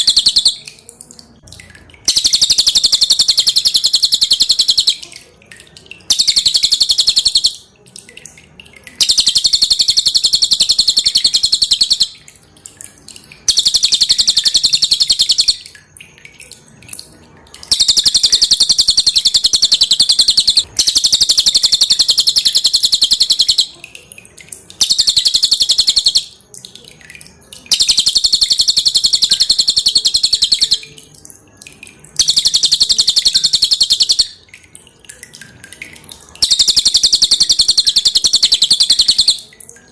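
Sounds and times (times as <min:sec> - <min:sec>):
bird singing high trills: 0:00.0 - 0:00.7, 0:02.1 - 0:05.0, 0:06.1 - 0:07.6, 0:09.0 - 0:12.2, 0:13.5 - 0:15.7, 0:17.7 - 0:23.8, 0:24.8 - 0:26.3, 0:27.7 - 0:30.9, 0:32.2 - 0:34.4, 0:36.4 - 0:39.5.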